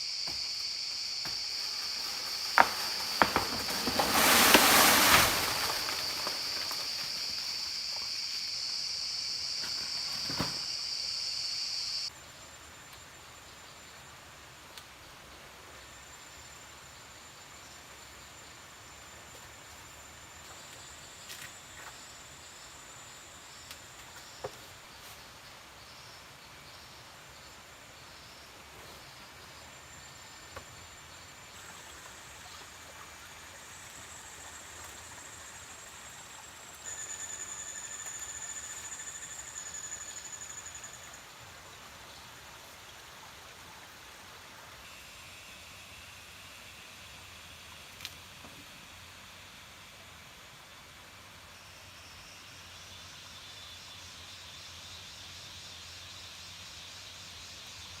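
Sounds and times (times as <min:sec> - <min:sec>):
hiss like water or rain: 0:00.0 - 0:58.0
faint high steady tone: 0:36.7 - 0:41.6.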